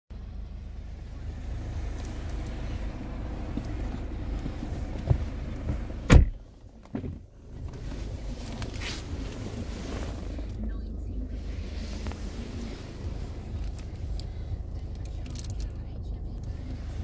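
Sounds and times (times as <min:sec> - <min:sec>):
steady low rumble: 0:00.1 - 0:17.0
solid thump: 0:06.1 - 0:07.2.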